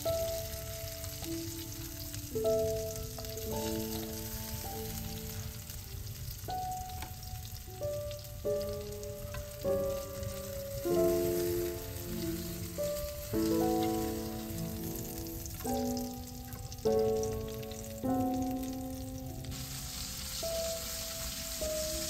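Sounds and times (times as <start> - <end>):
calm background music: 0.0 - 22.0
meat sizzling in oil: 0.0 - 22.0.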